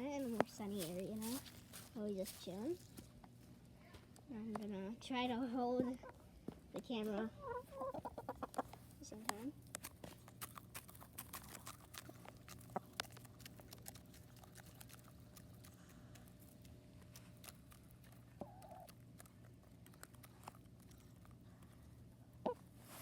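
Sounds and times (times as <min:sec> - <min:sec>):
chickens pecking taps: 0:00.3 - 0:01.6, 0:06.5 - 0:16.7, 0:17.5 - 0:20.3
chicken clucking: 0:07.1 - 0:08.9, 0:18.0 - 0:20.2, 0:22.4 - 0:22.7.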